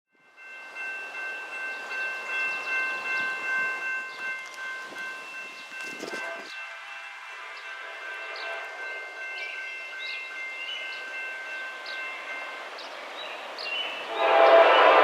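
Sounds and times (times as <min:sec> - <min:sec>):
high-pitched train tones: 0:00.2 - 0:15.0
rushing rail noise: 0:00.2 - 0:15.0.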